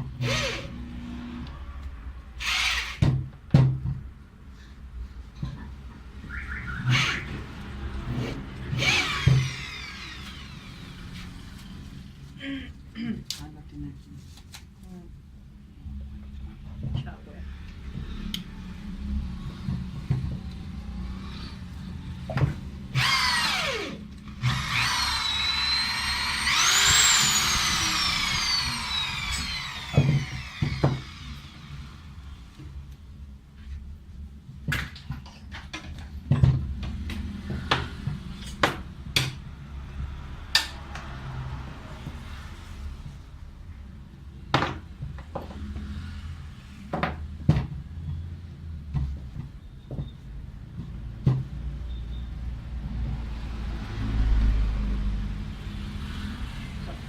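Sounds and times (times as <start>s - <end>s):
electric hand drill whining: 0.2s - 0.9s, 2.4s - 3.0s, 6.8s - 11.7s, 22.9s - 32.2s.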